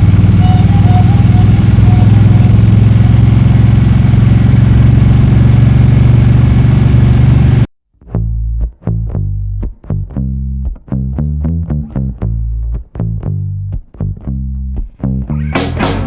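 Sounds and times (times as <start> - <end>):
motorcycle engine running: 0.0 - 7.7
bass guitar music: 0.0 - 16.0.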